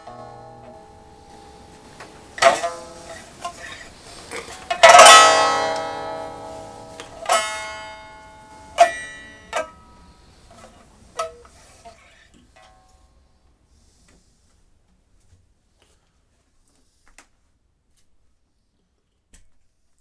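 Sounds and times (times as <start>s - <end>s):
plucked string music: 0.0s - 12.0s.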